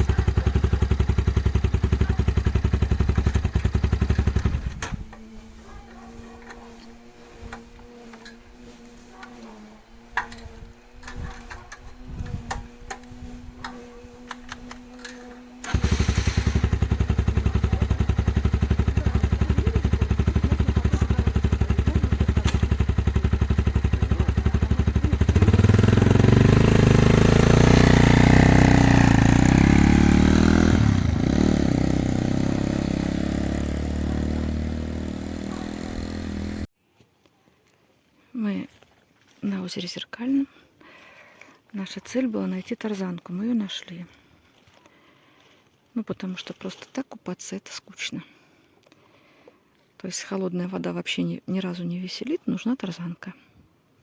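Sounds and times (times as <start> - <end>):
motorcycle engine revving: 0.0 - 36.7.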